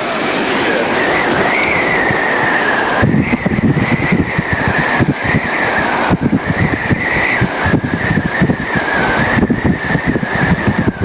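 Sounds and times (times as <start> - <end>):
road noise: 0.0 - 11.0
wavering high whine: 0.0 - 11.0
wind buffeting microphone: 0.0 - 11.0.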